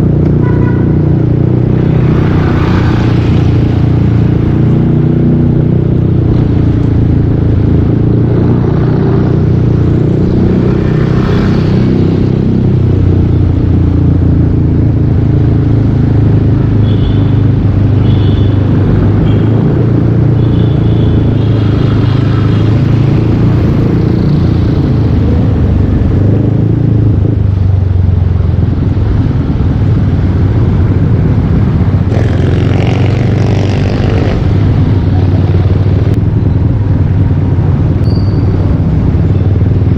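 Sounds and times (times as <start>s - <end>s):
short high-pitched tones: 38.0s - 38.6s.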